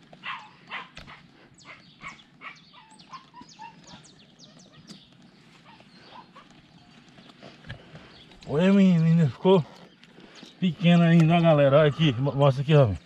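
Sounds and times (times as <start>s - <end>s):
birds calling high whistled notes: 0.3s - 12.4s.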